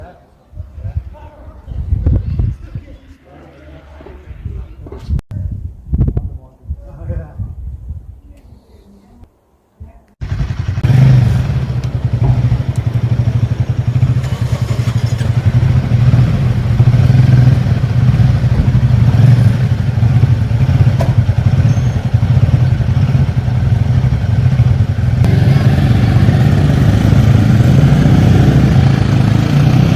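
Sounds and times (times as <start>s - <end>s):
motorcycle engine running: 10.2s - 29.9s.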